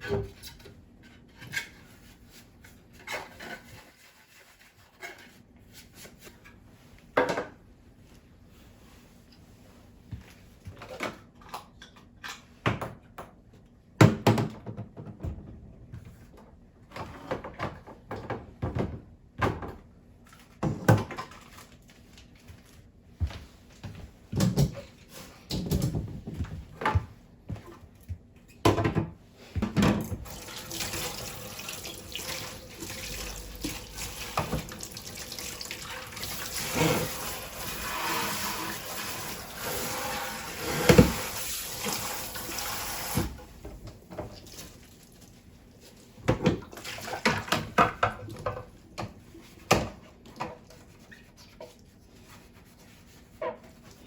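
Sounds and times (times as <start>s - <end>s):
tap running water into sink: 30.0s - 43.4s.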